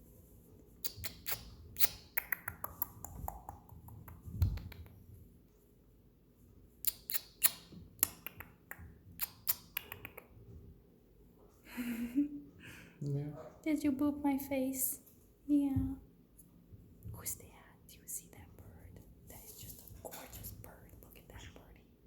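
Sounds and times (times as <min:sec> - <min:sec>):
parrot beak clicking and tapping: 0:00.8 - 0:05.0, 0:06.9 - 0:10.3.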